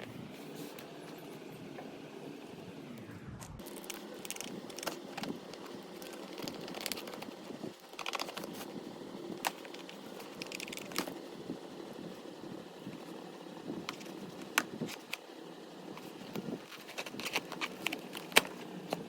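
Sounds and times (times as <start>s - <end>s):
steady background hum: 0.0s - 19.0s
packaging crinkling and rustling: 3.6s - 11.3s, 16.0s - 19.0s.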